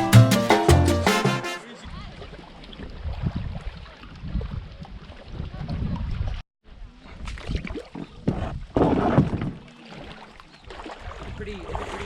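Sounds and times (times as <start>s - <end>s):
paddle in water: 1.6s - 12.0s
wind rumble on microphone: 1.9s - 9.7s, 10.9s - 12.0s
knocks and splashes: 7.2s - 12.0s.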